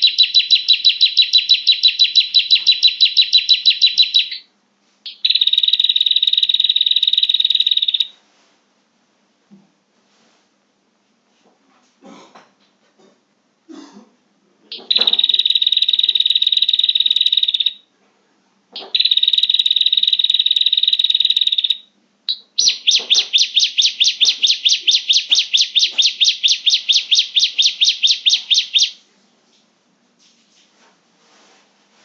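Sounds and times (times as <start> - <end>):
bird buzzy trills: 0.0 - 4.4, 5.1 - 8.1, 14.7 - 17.8, 18.8 - 29.0
bird sharp notes: 0.0 - 4.4, 14.7 - 17.6, 18.8 - 29.0.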